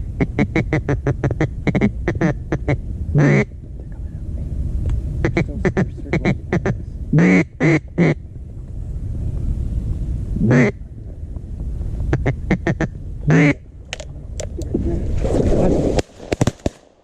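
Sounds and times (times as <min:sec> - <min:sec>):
duck call quacks: 0:00.2 - 0:03.5, 0:05.2 - 0:08.2, 0:10.4 - 0:10.8, 0:12.1 - 0:13.6.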